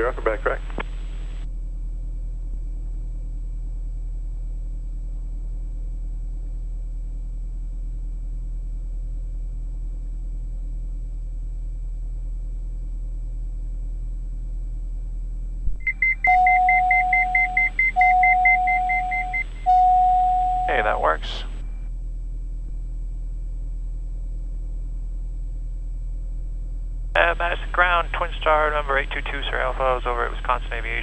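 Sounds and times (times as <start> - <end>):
aircraft cabin hum: 0.0 - 1.5, 15.6 - 21.8, 26.3 - 31.0
steady low tone: 15.6 - 23.0
faint high whine: 15.7 - 21.9, 27.2 - 31.0
fast-pulsing high beep: 15.9 - 21.0.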